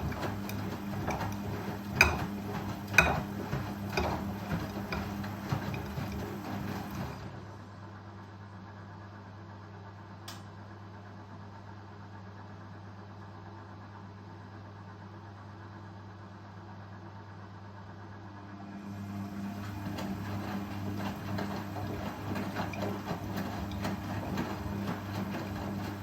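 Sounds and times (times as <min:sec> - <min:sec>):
washing machine humming: 0:00.0 - 0:08.9, 0:14.8 - 0:26.0.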